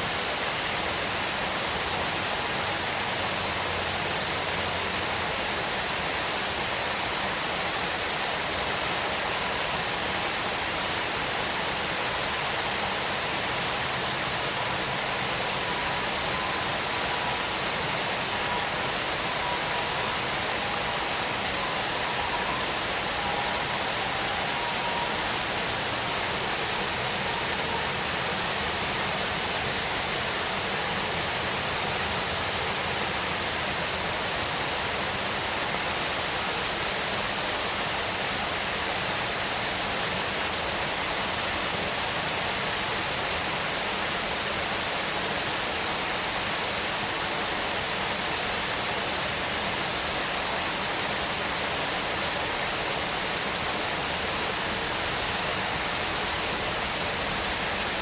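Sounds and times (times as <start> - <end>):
waterfall rushing: 0.0 - 58.0
faint wavering tone: 13.8 - 33.0.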